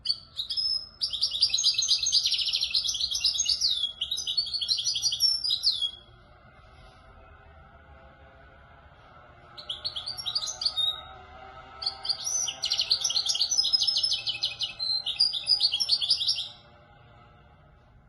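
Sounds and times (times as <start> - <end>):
goldfinch twittering song: 0.0 - 6.0, 9.6 - 11.1, 11.8 - 16.6.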